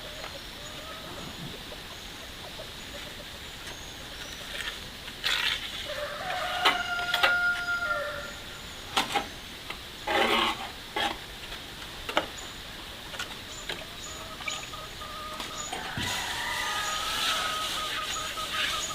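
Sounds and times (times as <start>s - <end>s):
hens clucking: 0.0s - 8.5s, 10.1s - 18.9s
rooster crowing: 5.8s - 8.5s, 15.0s - 18.9s.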